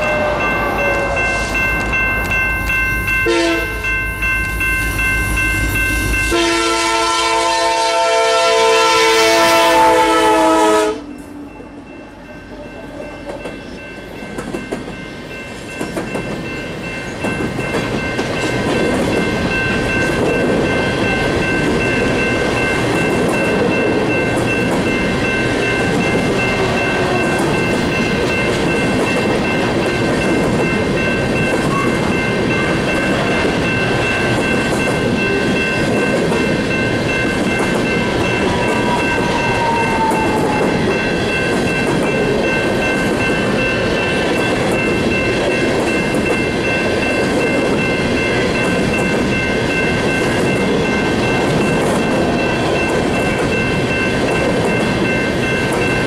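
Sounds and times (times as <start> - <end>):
wheels squealing on rails: 0.0 - 6.5, 37.4 - 48.0
train wheels rumbling and clattering: 12.7 - 56.0.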